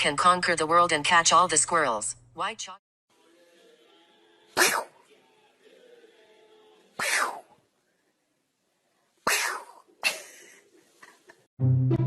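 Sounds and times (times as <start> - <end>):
person sneezing: 4.6 - 5.0, 7.0 - 7.6, 9.2 - 10.3.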